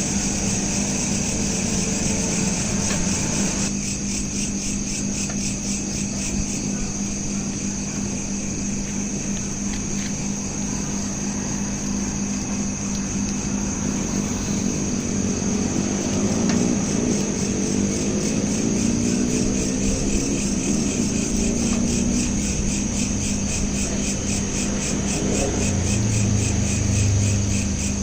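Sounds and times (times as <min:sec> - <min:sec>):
vehicle engine revving: 0:00.0 - 0:03.7, 0:10.2 - 0:28.0
crickets chirping: 0:00.0 - 0:28.0.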